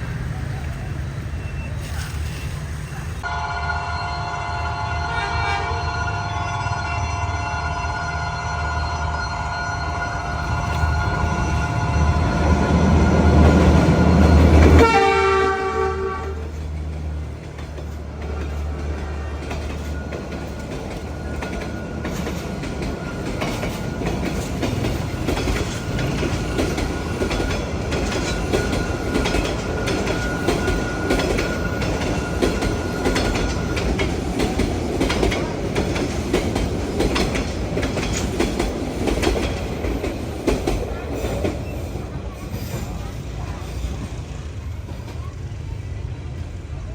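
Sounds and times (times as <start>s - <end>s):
locomotive engine rumble: 0.0s - 46.9s
train horn blast: 3.2s - 13.5s, 14.6s - 16.6s
train wheels clattering over rail joints: 16.6s - 45.6s.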